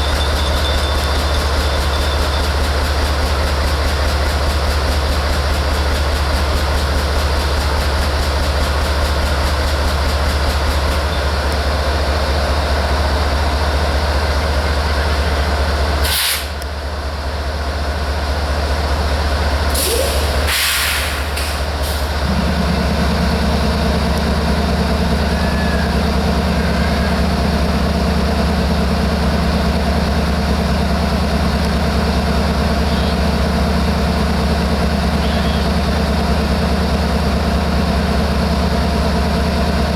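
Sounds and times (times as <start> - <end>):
diesel locomotive idling: 0.0 - 39.9
air brake hisses: 16.0 - 16.6, 19.7 - 22.2
higher steady hum: 22.2 - 25.2.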